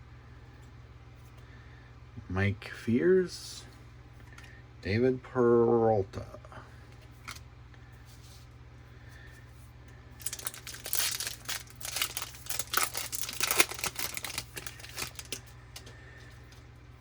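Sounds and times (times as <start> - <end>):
foil wrapper crinkling and tearing: 10.2 - 16.6.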